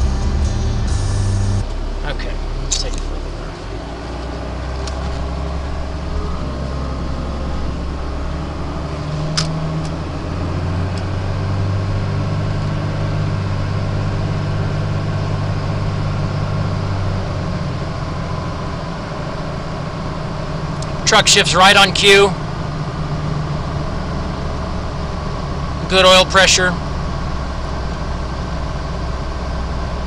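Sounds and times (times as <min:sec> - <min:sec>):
diesel truck engine running: 0:00.0 - 0:30.0.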